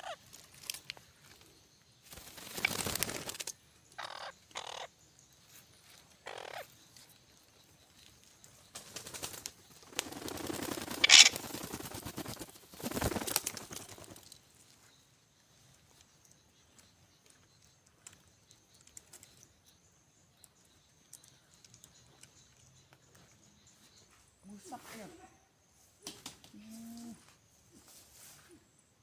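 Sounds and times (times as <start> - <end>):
parrots squawking: 4.0 - 4.9, 6.2 - 6.7, 11.0 - 11.3.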